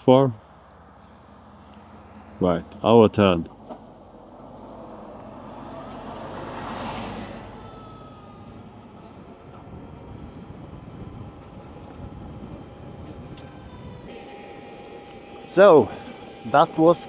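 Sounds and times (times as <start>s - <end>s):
wind and road noise: 0.0s - 17.0s
electric motor whine: 4.7s - 17.0s.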